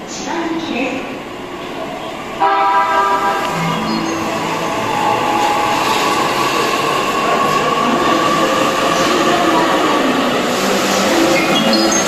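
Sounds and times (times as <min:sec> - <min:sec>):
chord of steady tones: 0:02.5 - 0:08.0.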